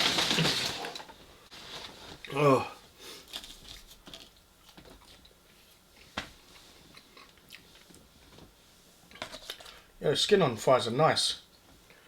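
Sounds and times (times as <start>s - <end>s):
person chewing food: 3.2s - 6.1s, 6.8s - 8.1s.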